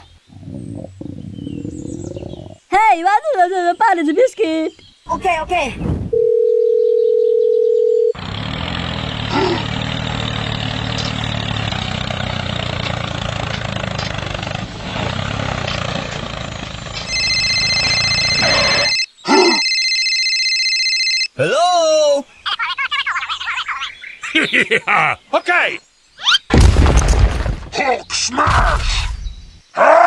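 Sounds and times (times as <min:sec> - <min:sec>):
phone ringing: 0:06.2 - 0:08.2, 0:17.1 - 0:21.3
tractor engine running: 0:08.2 - 0:19.0
electronic beep tone: 0:17.1 - 0:19.8.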